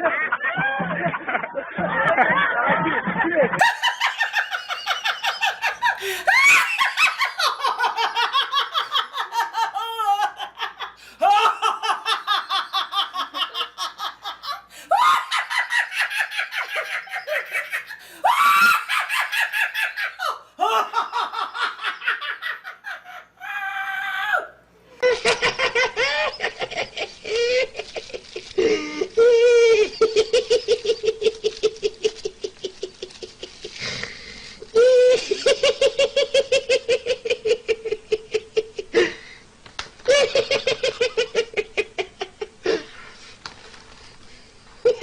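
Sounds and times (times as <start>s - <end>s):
rapid high-pitched laughter: 0.0s - 23.9s, 25.0s - 33.8s.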